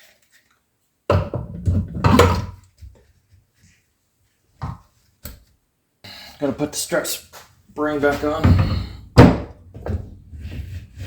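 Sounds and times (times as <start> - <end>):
parts knocking and clattering: 8.0 - 10.9.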